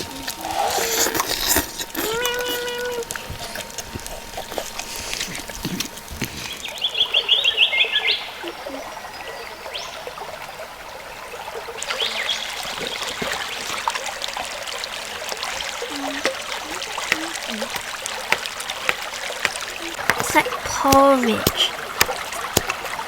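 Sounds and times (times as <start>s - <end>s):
drip-like ticks: 0.0s - 7.7s, 11.7s - 23.0s
water trickling and pouring: 0.0s - 23.0s.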